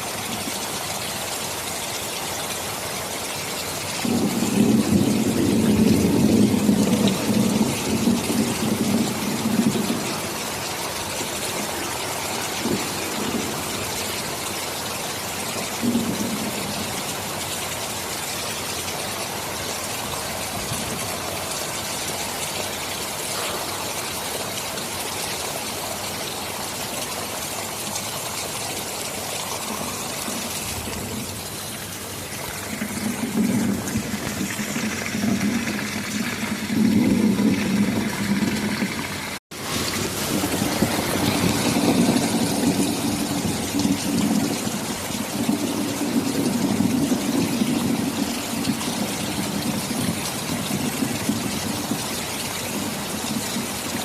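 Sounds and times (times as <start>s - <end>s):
heavy rain: 0.0s - 54.0s
low rolling thunder: 4.0s - 14.4s, 15.6s - 17.1s, 29.5s - 54.0s.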